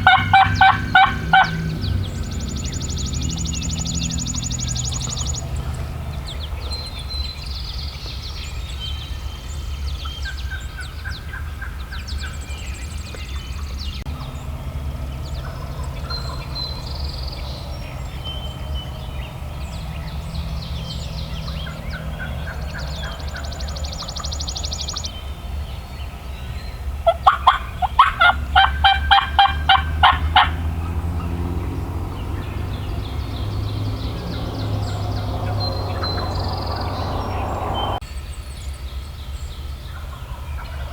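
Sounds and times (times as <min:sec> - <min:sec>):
raspy turkey calls: 0:00.0 - 0:07.1, 0:15.2 - 0:18.2, 0:19.8 - 0:25.0, 0:27.0 - 0:31.3
songbirds chirping and trilling: 0:00.0 - 0:40.9.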